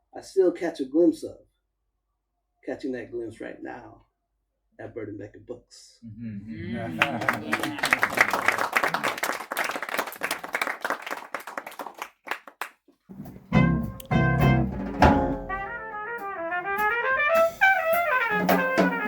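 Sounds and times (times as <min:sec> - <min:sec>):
audience applause: 0:06.8 - 0:12.7
brass lead melody: 0:13.1 - 0:19.0
drums: 0:13.1 - 0:19.0.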